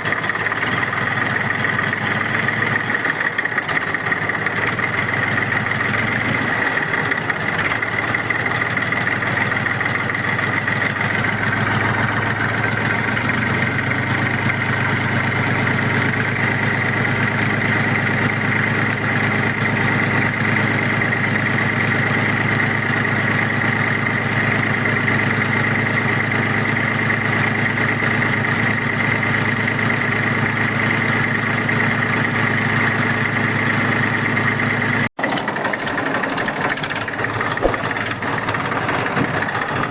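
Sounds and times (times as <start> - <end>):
small tractor motor whining: 0.0 - 39.9.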